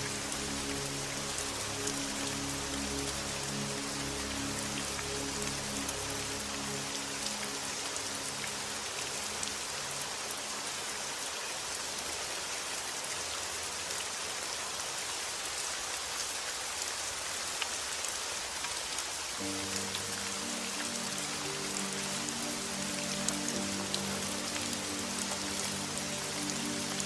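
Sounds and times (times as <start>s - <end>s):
soft sustained music notes: 0.0s - 10.8s, 19.4s - 27.0s
steady rain falling: 0.0s - 27.0s.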